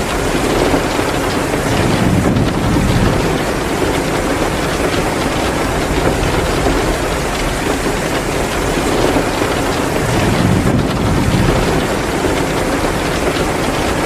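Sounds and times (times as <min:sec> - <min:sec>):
heavy rain hissing: 0:00.0 - 0:14.0
wood fire crackling: 0:00.0 - 0:14.0
low rumble: 0:01.6 - 0:04.6, 0:05.5 - 0:09.4, 0:10.0 - 0:13.1.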